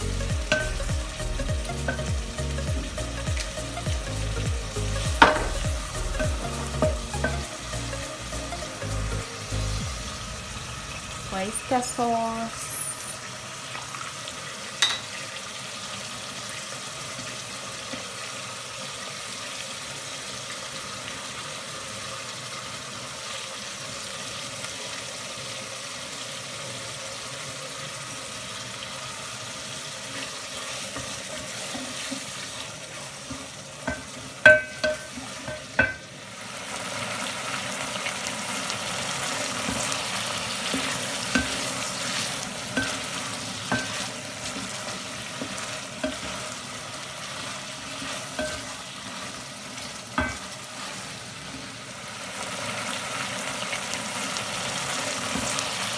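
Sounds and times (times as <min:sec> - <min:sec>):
rice sizzling in a pan: 0:00.0 - 0:55.9
utensil clinking against pan: 0:00.5 - 0:01.0, 0:01.8 - 0:02.1, 0:05.0 - 0:07.5, 0:14.8 - 0:15.1, 0:33.9 - 0:36.1, 0:40.7 - 0:41.9, 0:42.7 - 0:44.7, 0:48.4 - 0:48.8, 0:50.2 - 0:50.4.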